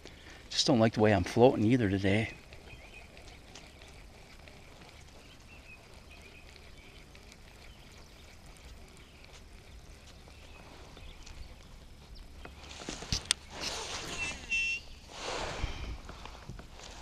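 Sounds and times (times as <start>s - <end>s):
small ticks: 0.0s - 13.5s
bird chirping: 0.0s - 16.1s
water lapping: 0.0s - 17.0s
low wind rumble on microphone: 7.5s - 17.0s.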